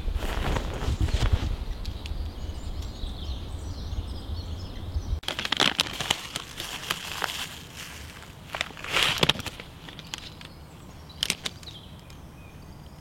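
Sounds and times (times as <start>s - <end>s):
rustling and handling noise: 0.2s - 1.6s, 5.2s - 10.6s.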